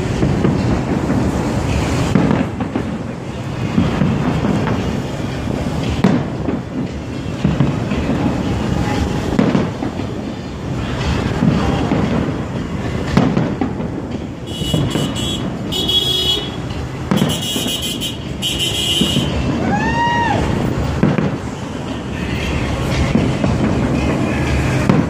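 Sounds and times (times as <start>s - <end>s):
fireworks booming: 0.0s - 25.0s
street traffic din: 0.0s - 25.0s.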